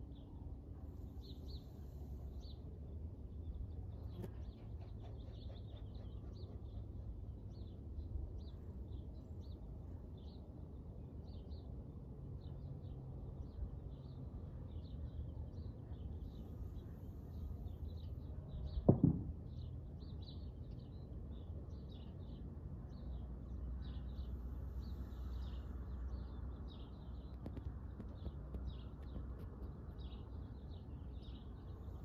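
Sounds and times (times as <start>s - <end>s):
small birds chirping: 1.0s - 10.4s, 12.4s - 18.9s, 19.6s - 32.0s
loud thump: 18.8s - 19.3s.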